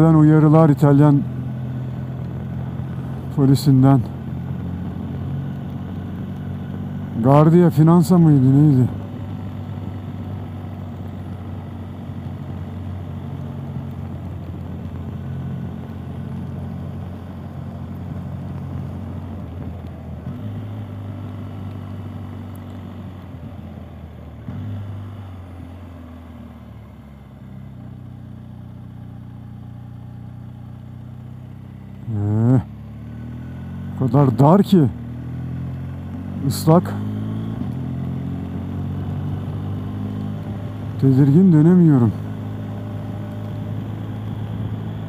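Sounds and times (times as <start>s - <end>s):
motorcycle engine cruising: 0.0s - 45.0s.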